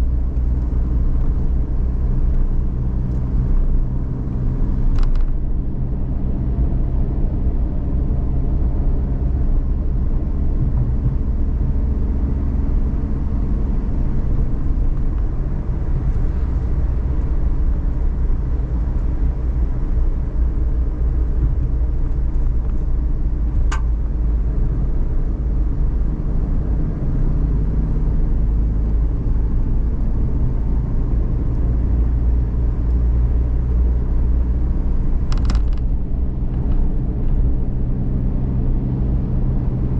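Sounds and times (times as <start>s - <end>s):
van engine and road rumble: 0.0s - 39.9s
short click: 23.7s - 23.9s.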